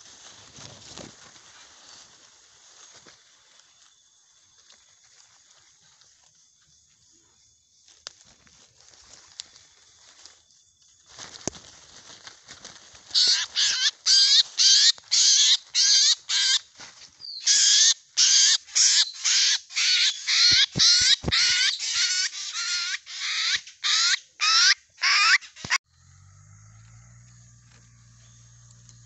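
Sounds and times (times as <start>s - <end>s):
crow-like bird harsh calls: 13.2s - 16.6s.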